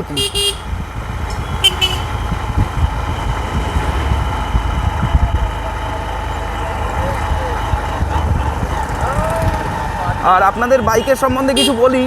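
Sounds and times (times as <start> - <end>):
motorcycle engine running: 0.0 - 12.0
wind rumble on microphone: 0.6 - 5.8.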